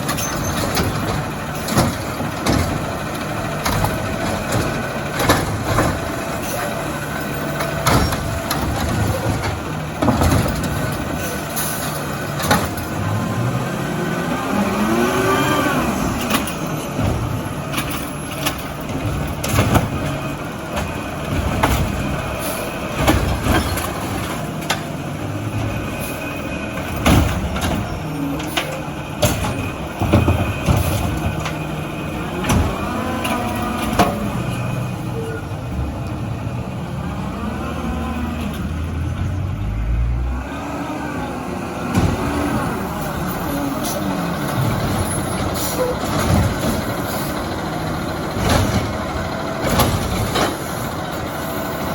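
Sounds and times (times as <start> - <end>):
sharp metallic bangs and clanks: 0.0 - 13.2, 16.0 - 34.8
diesel truck engine revving: 0.0 - 51.9.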